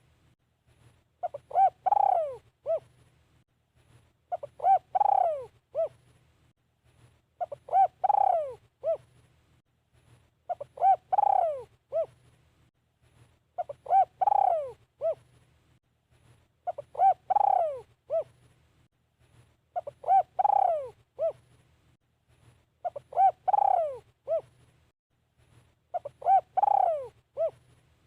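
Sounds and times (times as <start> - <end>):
dove cooing: 1.2 - 2.9, 4.3 - 6.0, 7.4 - 9.1, 10.5 - 12.2, 13.6 - 15.3, 16.6 - 18.4, 19.8 - 21.4, 22.8 - 24.6, 25.9 - 27.7.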